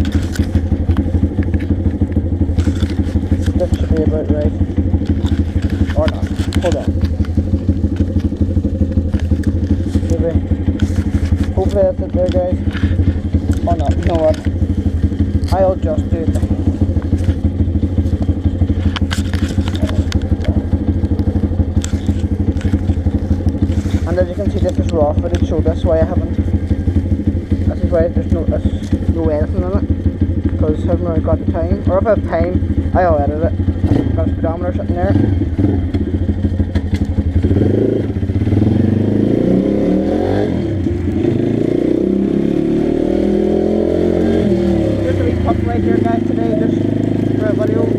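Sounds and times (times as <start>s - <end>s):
sharp clicks and knocks: 0.0s - 30.7s, 34.7s - 42.2s
pit bike engine idling: 0.0s - 47.9s.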